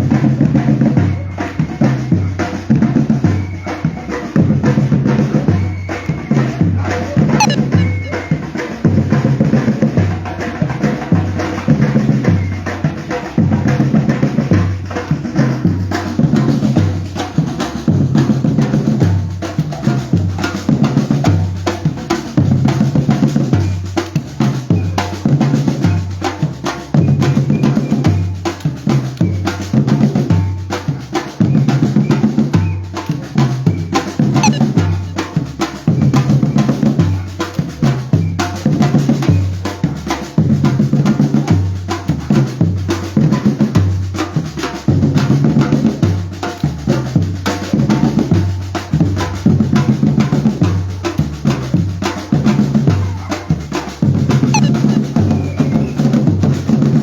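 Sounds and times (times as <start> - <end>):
percussion ensemble drumming: 0.0 - 57.0.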